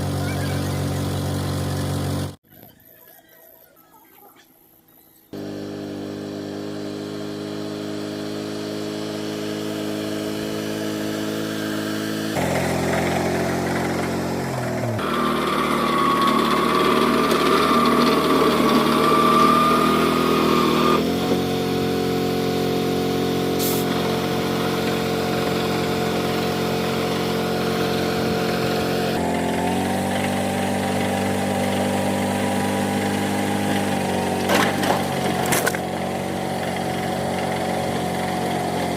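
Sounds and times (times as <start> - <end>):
small engine running: 0.0 - 3.6, 4.2 - 38.9.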